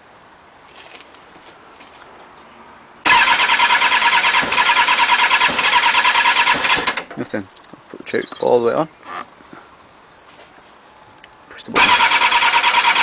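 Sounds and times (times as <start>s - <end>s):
electric starter cranking engine: 3.0s - 7.1s, 11.8s - 13.0s.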